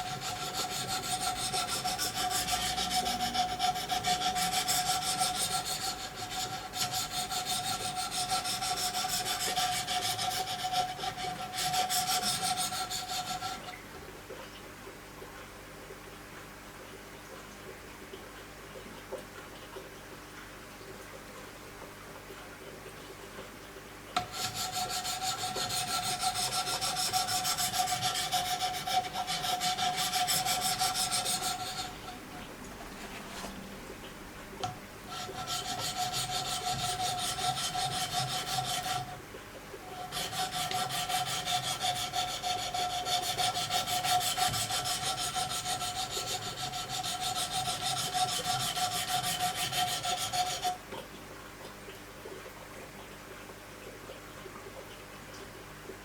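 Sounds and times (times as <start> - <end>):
sharpening stones scraping knife: 24.2 - 32.0, 35.2 - 39.1.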